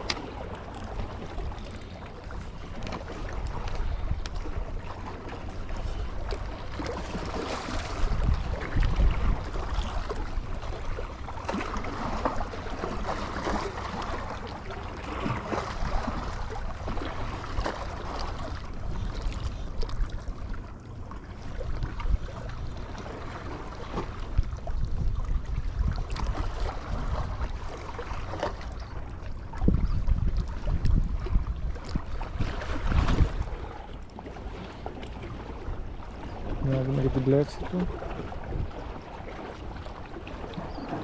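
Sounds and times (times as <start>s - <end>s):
sea water lapping: 0.0s - 41.0s
wind buffeting microphone: 7.0s - 10.8s, 24.2s - 27.6s, 29.4s - 33.9s, 35.3s - 41.0s.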